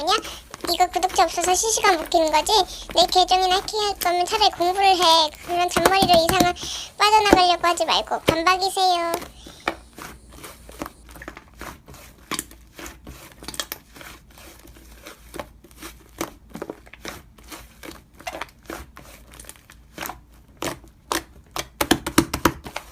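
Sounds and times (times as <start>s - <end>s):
crinkling handling noises: 0.0s - 13.7s.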